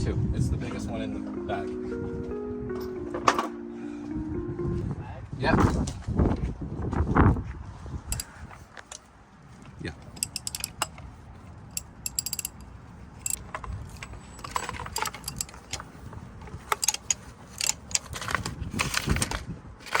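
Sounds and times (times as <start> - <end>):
metal tools clanking: 10.1 - 10.9, 11.7 - 12.6, 13.2 - 15.9, 16.6 - 18.1
ratchet wrench clicking: 10.2 - 10.9, 11.8 - 12.6, 13.2 - 13.4, 15.0 - 15.8, 16.8 - 17.9.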